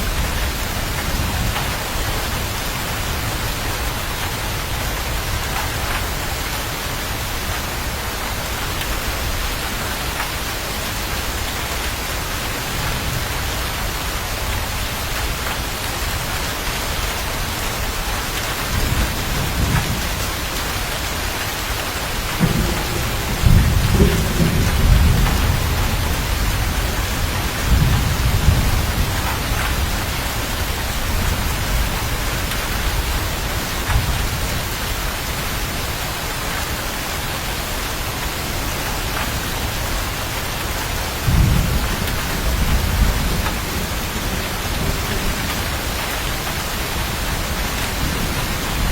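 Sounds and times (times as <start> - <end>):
heavy rain: 0.0 - 48.9
rolling thunder: 22.2 - 34.7, 41.2 - 48.9.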